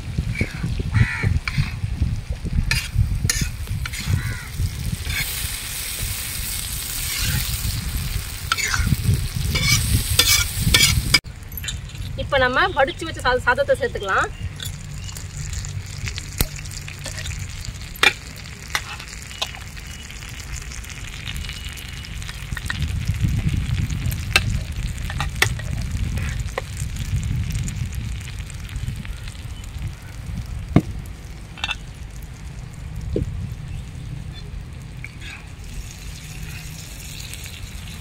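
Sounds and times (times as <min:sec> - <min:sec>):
food sizzling on griddle: 0:00.0 - 0:11.2, 0:14.7 - 0:38.0.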